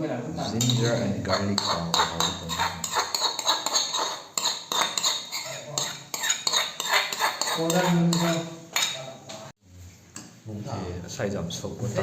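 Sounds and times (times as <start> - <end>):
cutlery and dishes clinking: 0.5 - 9.1.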